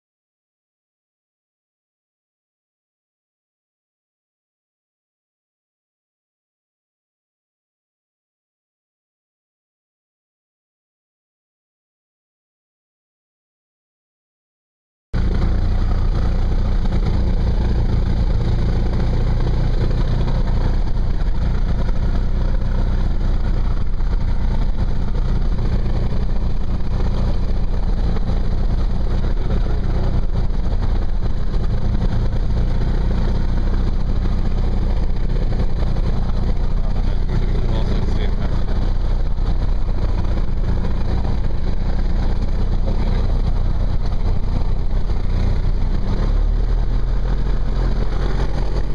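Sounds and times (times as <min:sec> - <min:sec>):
propeller plane engine droning: 0:15.2 - 0:48.9.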